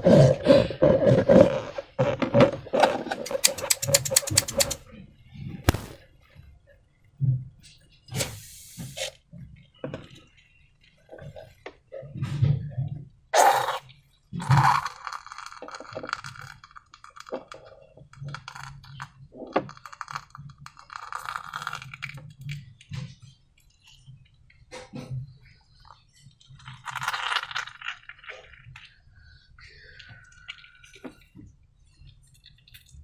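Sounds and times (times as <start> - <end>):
loud sharp sounds: 5.7 - 6.0
slime and balloon handling clicks: 5.7 - 6.0.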